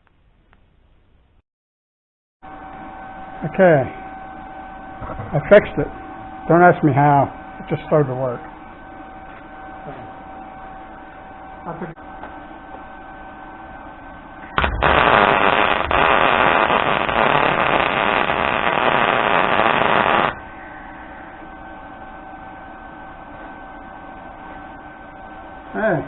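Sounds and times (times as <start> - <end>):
welding arc crackling: 14.6 - 20.5.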